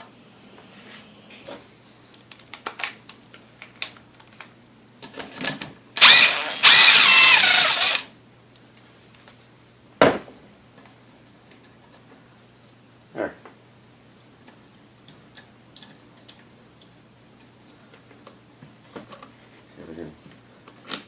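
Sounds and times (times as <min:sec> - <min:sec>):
power drill whining: 0:06.0 - 0:08.1.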